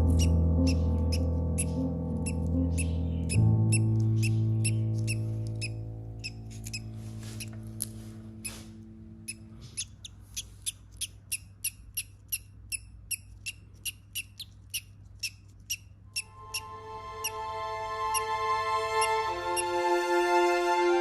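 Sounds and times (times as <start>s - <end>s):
parrot chirping: 0.0s - 7.6s, 8.4s - 17.4s, 18.1s - 19.7s
music chord: 0.0s - 9.6s, 16.2s - 21.0s.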